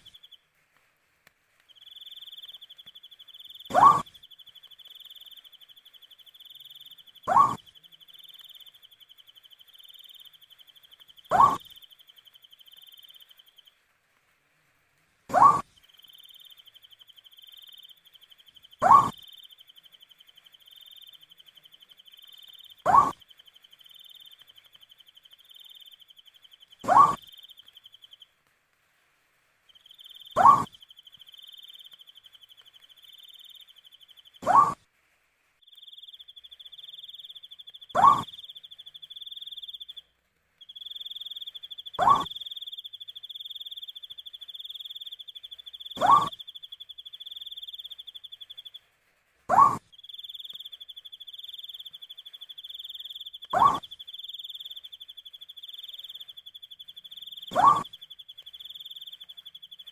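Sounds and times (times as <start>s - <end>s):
owl calling: 0.0s - 0.3s, 1.8s - 13.6s, 15.3s - 18.0s, 18.7s - 28.2s, 29.8s - 34.8s, 35.7s - 40.0s, 40.7s - 48.8s, 49.5s - 59.9s
crickets trilling: 40.6s - 48.8s.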